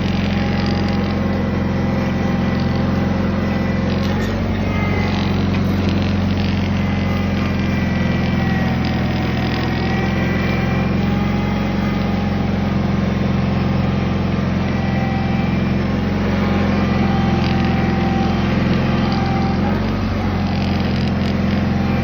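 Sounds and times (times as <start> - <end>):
garden tractor engine running: 0.0 - 22.0.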